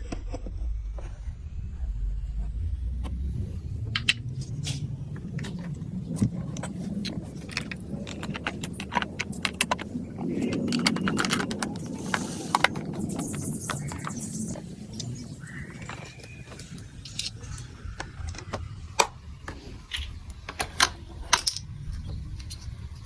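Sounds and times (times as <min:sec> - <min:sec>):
marbles rolling in plastic run: 0:05.2 - 0:18.8
marbles clicking: 0:05.4 - 0:18.6.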